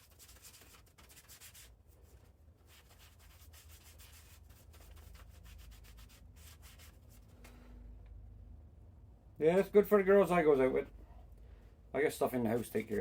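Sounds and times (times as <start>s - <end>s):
quick rubbing strokes: 2.7s - 7.3s, 12.5s - 13.0s.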